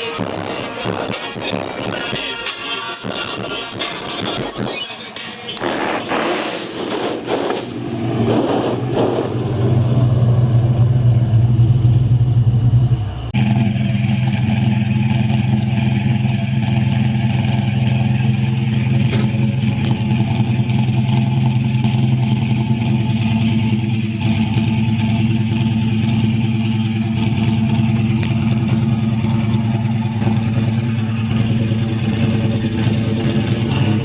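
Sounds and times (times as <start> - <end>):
car engine idling: 0.0 - 34.0
second steady engine sound: 0.0 - 34.0.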